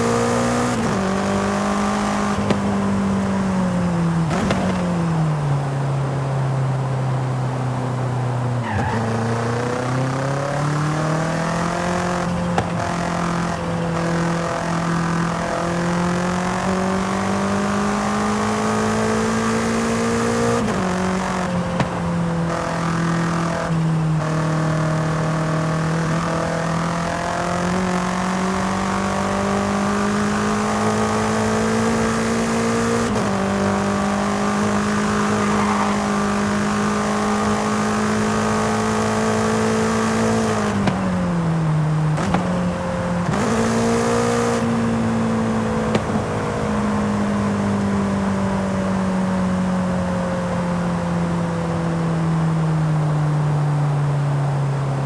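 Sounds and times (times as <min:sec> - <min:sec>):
car engine revving while driving: 0:00.0 - 0:55.0.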